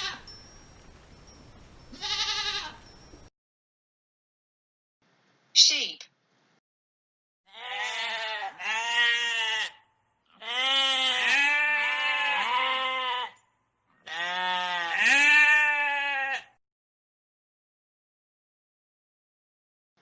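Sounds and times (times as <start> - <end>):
sheep bleating: 0.0 - 0.3, 1.9 - 2.8, 7.5 - 13.4, 14.0 - 16.6.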